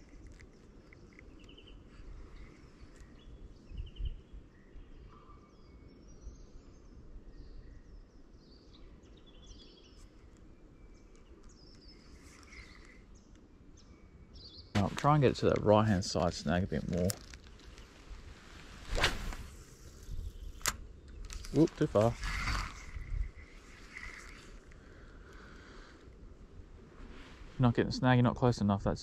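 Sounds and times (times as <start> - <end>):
small birds chirping and trilling: 0.0 - 18.2, 19.7 - 26.1
faint low rumble: 14.8 - 29.0.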